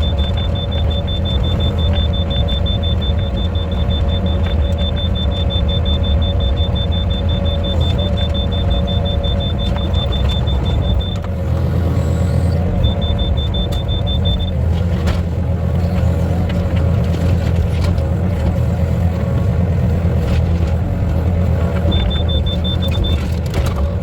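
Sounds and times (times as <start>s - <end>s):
rapid high-pitched pulsing beep: 0.0s - 11.2s, 12.8s - 14.6s, 21.9s - 23.2s
excavator engine rumbling: 0.0s - 24.0s.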